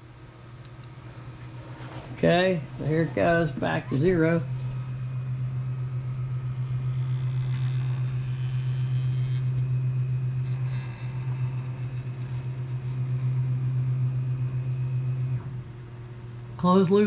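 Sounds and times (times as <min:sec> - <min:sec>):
stepper motors fluttering hum: 0:00.0 - 0:17.0.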